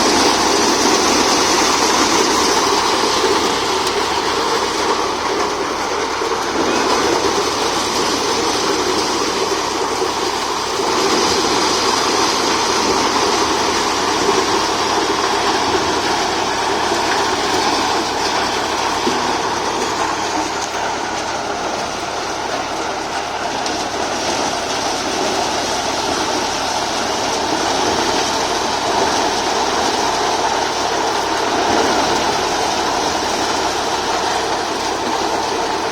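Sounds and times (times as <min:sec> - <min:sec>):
thresher mechanical rattle and hum: 0:00.0 - 0:35.9.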